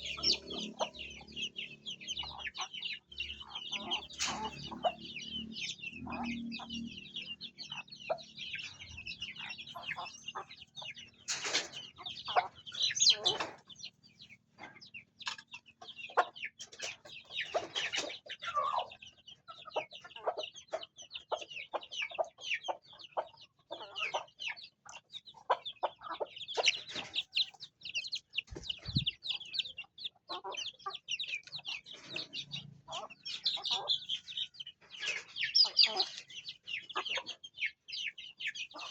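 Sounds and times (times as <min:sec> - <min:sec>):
chicks peeping: 0:00.0 - 0:38.9
hens clucking: 0:00.0 - 0:38.9
louder chicken calls: 0:25.4 - 0:34.3.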